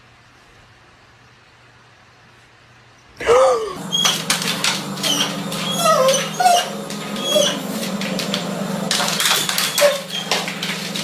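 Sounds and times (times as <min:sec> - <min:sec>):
animal squeaking and chirping: 0:03.8 - 0:11.0.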